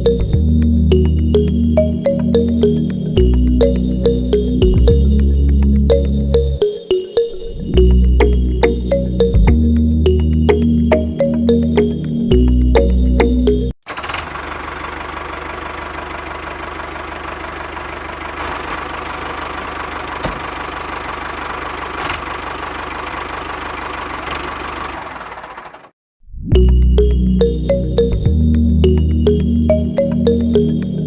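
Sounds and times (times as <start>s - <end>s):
miniature engine-driven mill running: 13.9s - 25.9s.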